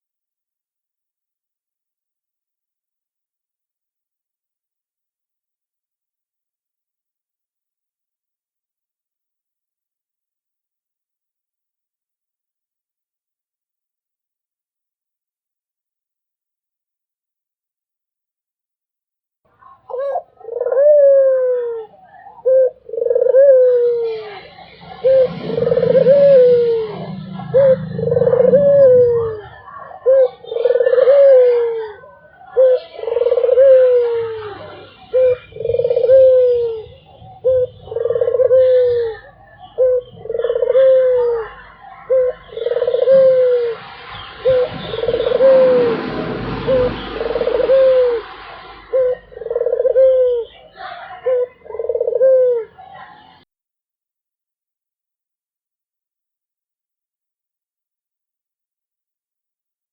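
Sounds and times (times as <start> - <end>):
dove cooing: 19.6 - 53.4.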